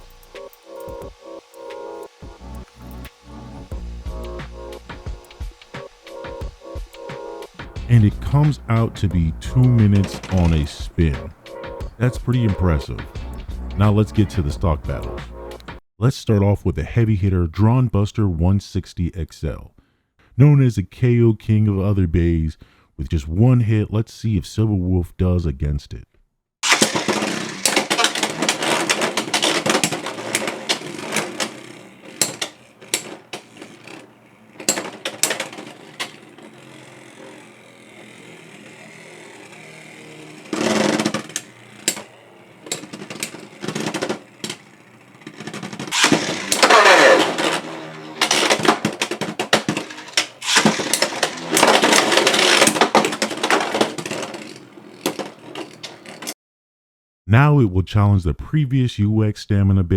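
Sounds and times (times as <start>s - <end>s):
spinning tops whirring: 0.0s - 15.8s, 26.6s - 56.4s
spinning tops clashing: 7.5s - 15.7s, 26.6s - 56.3s.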